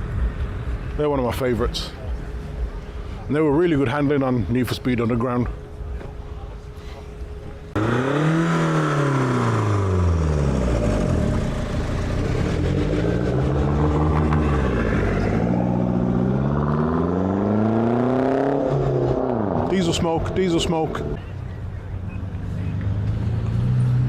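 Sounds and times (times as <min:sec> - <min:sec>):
car engine revving: 0:07.8 - 0:21.2, 0:22.6 - 0:24.0.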